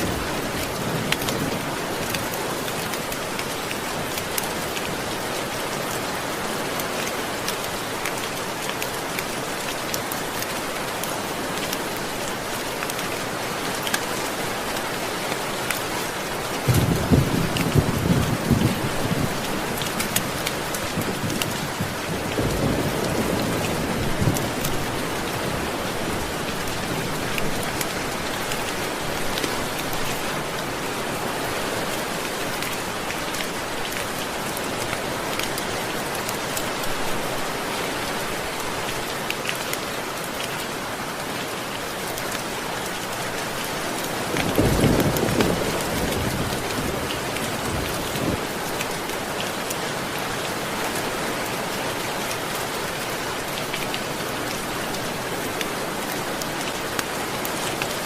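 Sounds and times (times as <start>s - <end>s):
steady rain: 0.0s - 58.0s
thunder rumbling: 16.7s - 19.4s.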